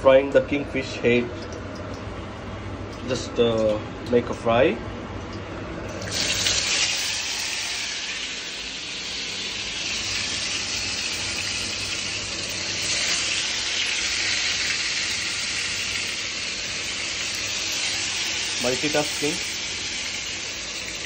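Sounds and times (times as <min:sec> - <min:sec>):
fish sizzling in hot oil: 0:05.9 - 0:21.0.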